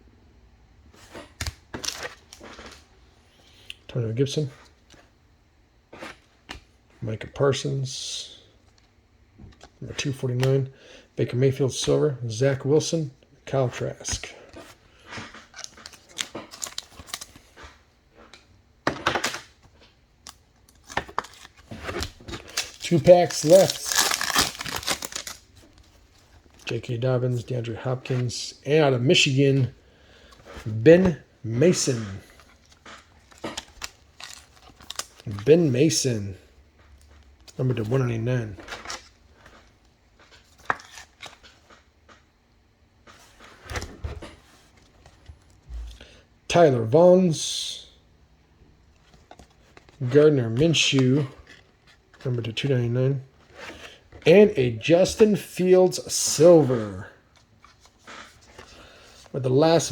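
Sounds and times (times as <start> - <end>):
cards clicking and rustling: 15.1 - 26.7, 31.8 - 35.8, 38.6 - 42.2.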